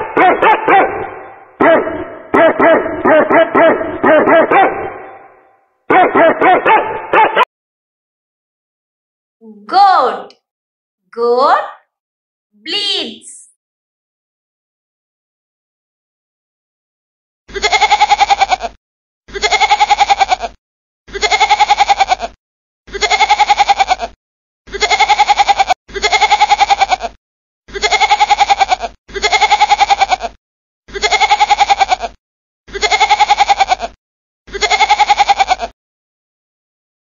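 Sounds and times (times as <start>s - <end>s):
goat bleating: 17.5s - 35.8s.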